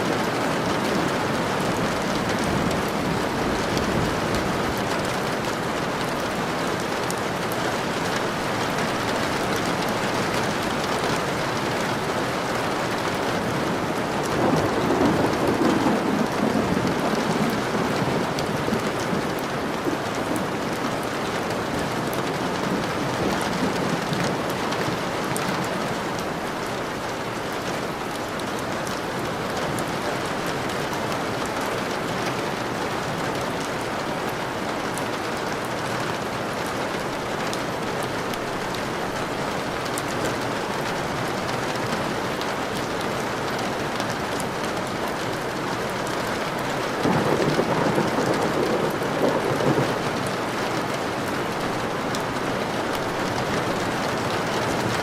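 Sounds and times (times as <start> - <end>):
rain falling on a surface: 0.0 - 55.0
low thunder rumble: 14.3 - 19.8, 47.0 - 50.3.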